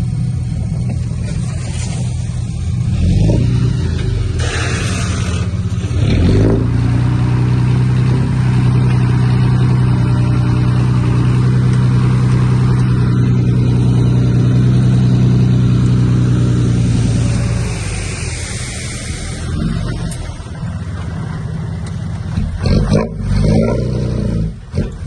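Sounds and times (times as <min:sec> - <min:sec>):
heavy diesel engine revving: 0:00.0 - 0:25.0
brief hiss: 0:04.4 - 0:05.5, 0:17.0 - 0:20.4.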